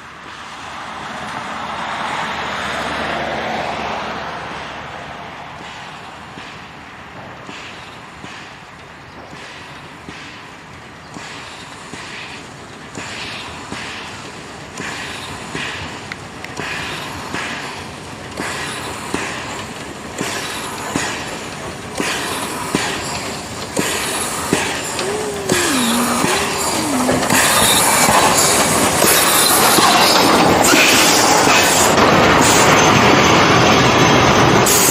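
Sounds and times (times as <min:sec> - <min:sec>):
train passing close: 0:00.0 - 0:34.9
steam locomotive puffing: 0:09.3 - 0:33.0.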